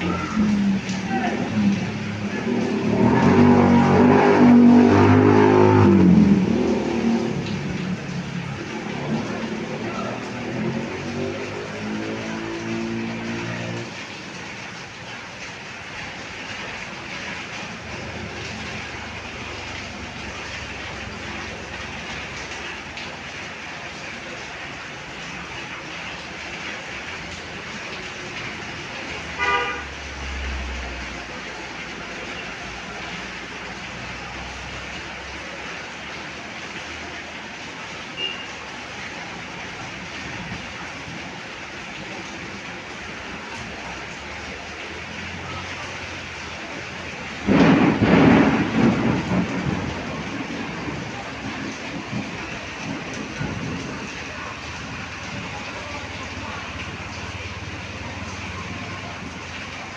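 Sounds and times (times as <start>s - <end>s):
thunder clap and rumble: 0.0s - 13.8s, 47.2s - 59.7s
heavy rain falling: 0.0s - 59.9s
horn toot: 29.4s - 29.9s.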